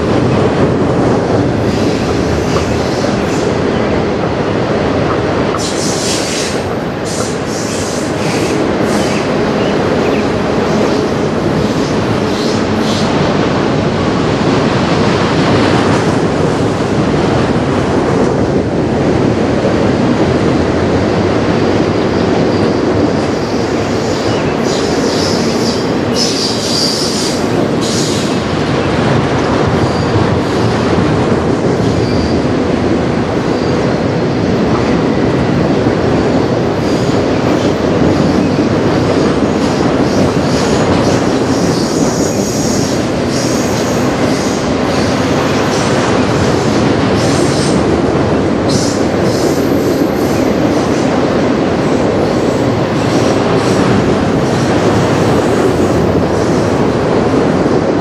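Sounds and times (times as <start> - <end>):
train wheels rumbling on rails: 0.0 - 58.0
high wheel squeal: 5.6 - 11.2.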